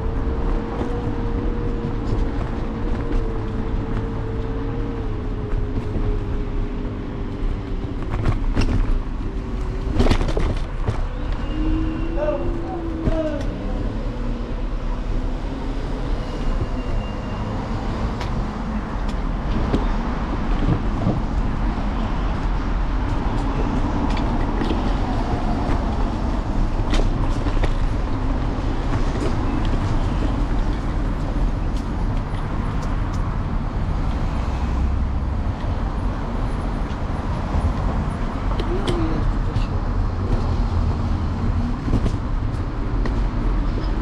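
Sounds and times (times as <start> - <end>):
city traffic rumble: 0.0 - 44.0.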